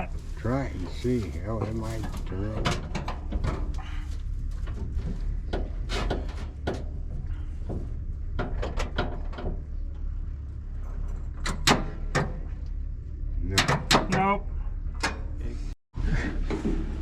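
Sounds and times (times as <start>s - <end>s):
starter clicks and clunks: 4.6s - 10.2s.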